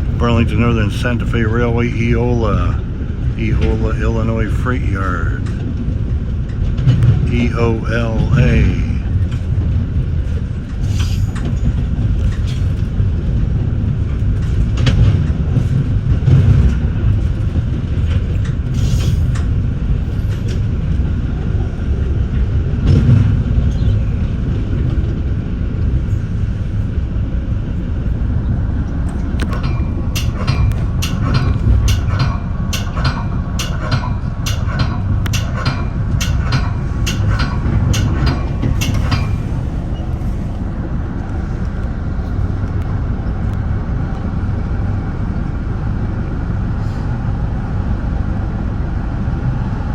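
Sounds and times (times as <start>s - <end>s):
train wheels rumbling on rail: 0.0s - 49.9s
sharp ringing clicks: 29.4s - 39.4s.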